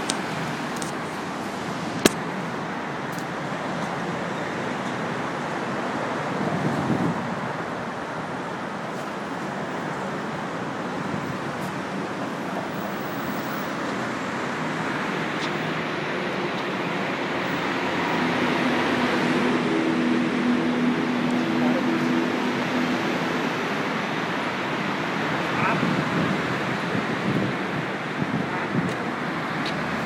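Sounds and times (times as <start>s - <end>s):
car engine and road noise: 0.0s - 30.0s
engine drone: 12.0s - 30.0s.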